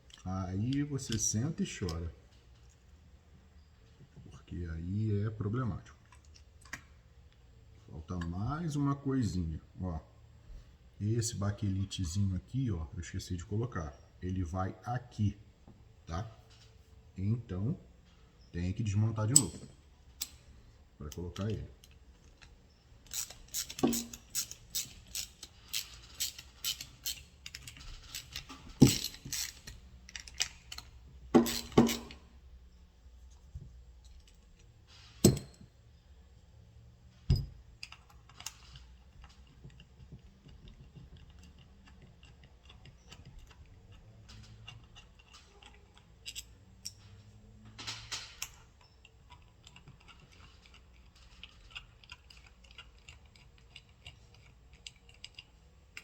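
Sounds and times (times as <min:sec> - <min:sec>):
metal parts clicking and clattering: 0:19.2 - 0:32.3, 0:34.0 - 0:35.7, 0:37.1 - 0:56.0.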